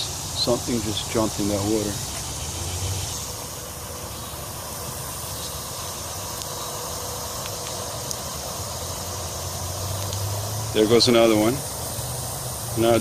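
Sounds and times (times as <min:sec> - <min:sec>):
even hiss: 0:00.0 - 0:13.0.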